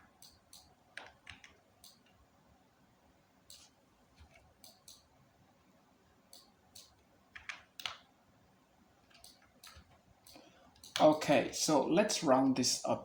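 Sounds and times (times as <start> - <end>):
mouse and keyboard clicks: 3.4 - 5.1, 6.3 - 8.1, 9.1 - 11.2.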